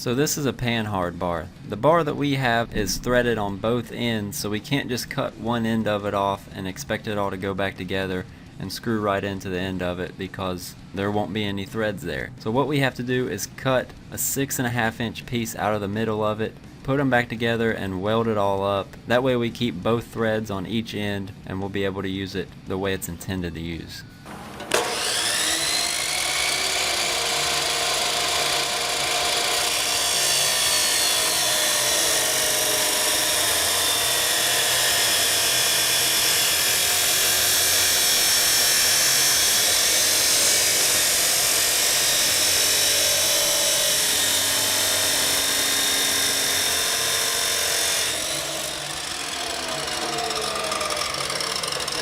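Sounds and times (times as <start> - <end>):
power tool cutting steel: 24.3 - 52.0.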